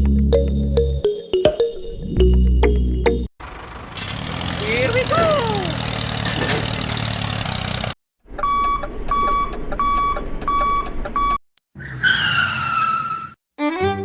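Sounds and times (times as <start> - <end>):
engine-like hum: 2.8 - 8.0.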